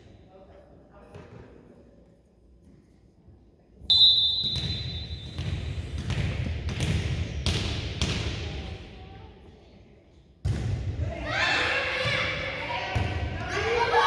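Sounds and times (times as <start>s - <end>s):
referee's whistle: 3.9s - 5.7s
volleyball bouncing on gym floor: 4.4s - 8.8s, 10.4s - 11.3s, 12.0s - 13.8s.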